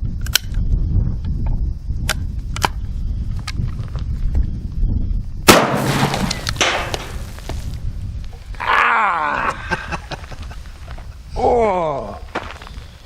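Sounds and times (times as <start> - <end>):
wind rumbling on microphone: 0.0 - 13.0
shotgun blast: 5.5 - 7.2.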